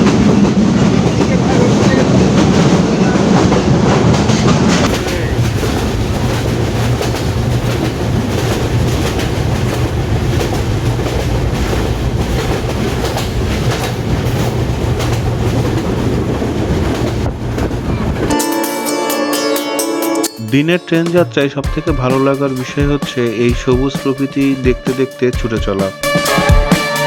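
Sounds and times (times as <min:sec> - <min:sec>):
wheels clacking over track: 0:00.0 - 0:18.4
train rumbling at speed: 0:00.0 - 0:18.6.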